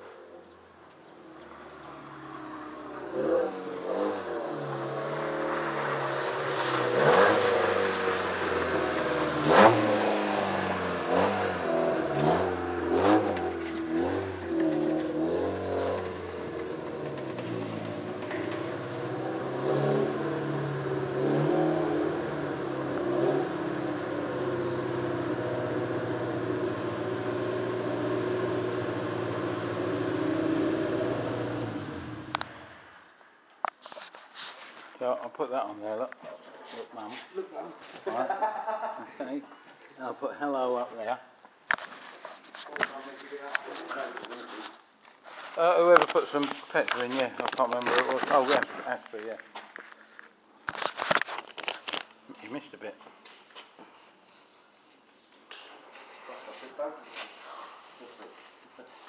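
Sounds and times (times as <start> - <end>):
car engine revving: 1.3 - 32.8.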